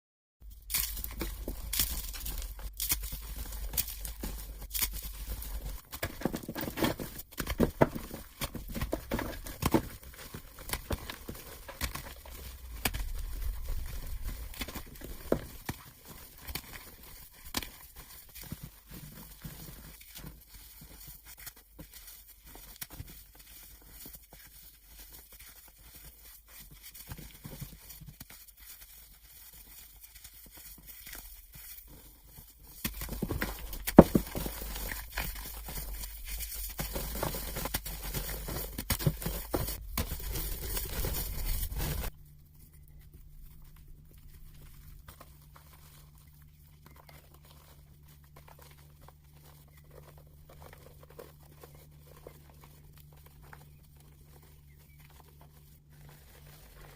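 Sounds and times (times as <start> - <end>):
chalk crunching and crumbling: 0.4 - 56.9
low steady hum: 31.0 - 56.9.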